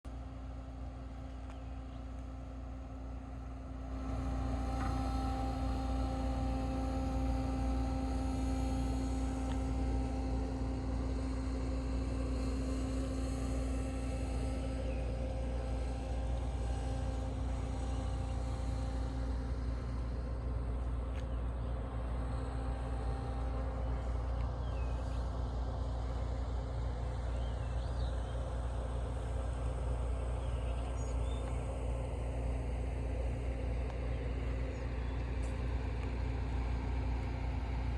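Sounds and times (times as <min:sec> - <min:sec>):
ferry engine droning hum: 0:00.0 - 0:37.9.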